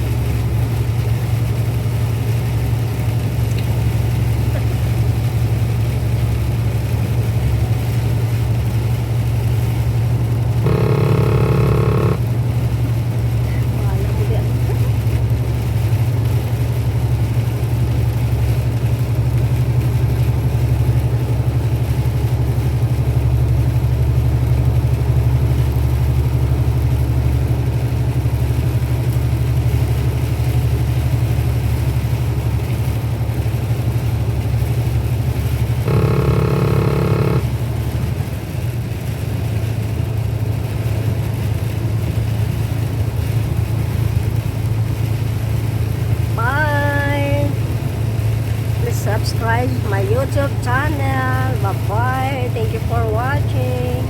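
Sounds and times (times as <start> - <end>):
truck engine and road drone: 0.0 - 54.0
steady pitched tone: 10.6 - 12.2, 35.9 - 37.5.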